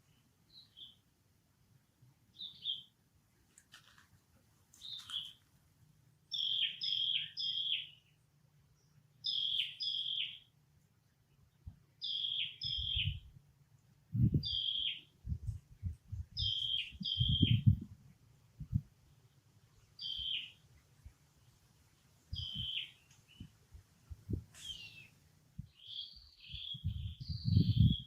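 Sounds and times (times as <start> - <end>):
bird calling: 6.3 - 8.1, 9.2 - 10.5, 12.0 - 13.2, 14.4 - 15.1, 16.4 - 17.7, 20.0 - 20.6, 22.4 - 23.4, 24.6 - 28.0.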